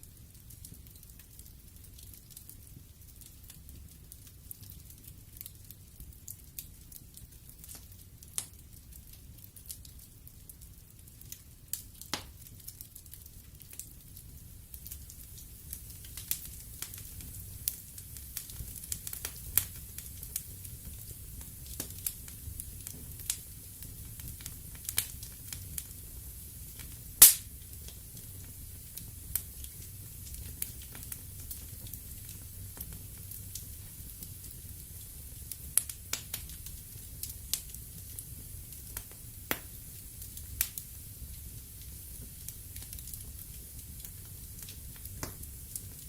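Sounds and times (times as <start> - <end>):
wood fire crackling and popping: 0.0 - 46.0
flames rumbling: 13.4 - 46.0.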